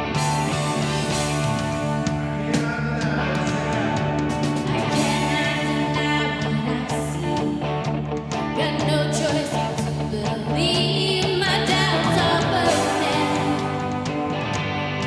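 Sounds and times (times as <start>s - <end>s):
worship band playing: 0.0s - 8.5s, 11.6s - 15.0s
guitar: 0.0s - 15.0s.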